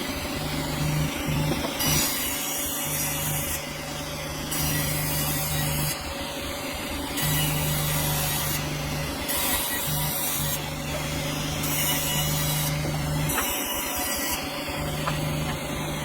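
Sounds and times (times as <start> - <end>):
motor humming: 7.2 - 16.0
saw blade rasping through log: 9.3 - 15.9.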